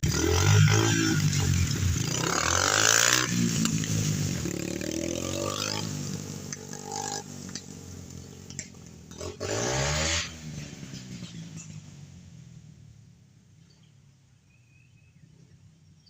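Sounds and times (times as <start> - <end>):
dirt bike engine revving: 0.0 - 11.9.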